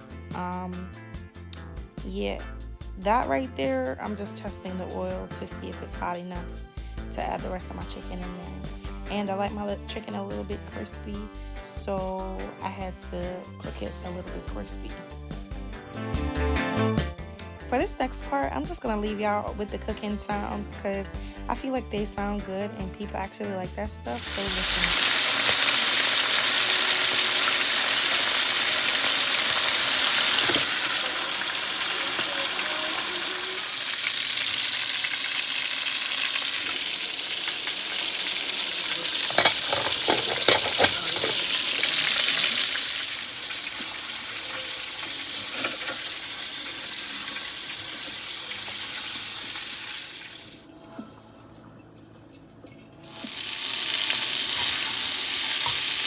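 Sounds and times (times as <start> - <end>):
meat sizzling in hot oil: 24.1 - 50.6, 53.1 - 56.0.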